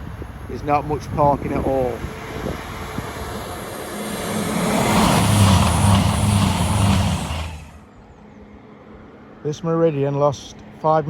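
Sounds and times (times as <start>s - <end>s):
diesel engines humming: 0.0s - 7.8s
wheel and rail noise: 0.0s - 7.8s.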